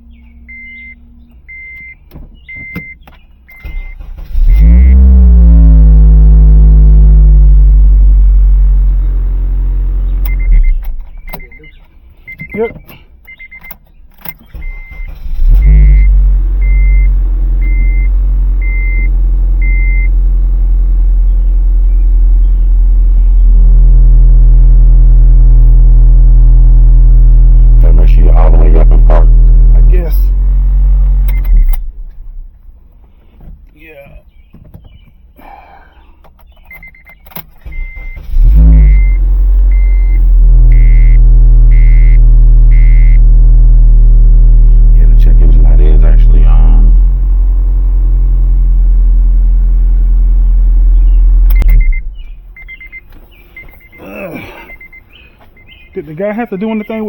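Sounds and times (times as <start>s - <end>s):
dashboard warning chime beeping: 0.0s - 5.1s, 10.2s - 20.2s, 31.2s - 31.8s, 36.6s - 43.2s, 51.5s - 57.0s
car engine starting and idling: 0.0s - 57.0s
warning chime beeping: 0.5s - 5.0s, 37.7s - 43.2s, 53.6s - 57.0s.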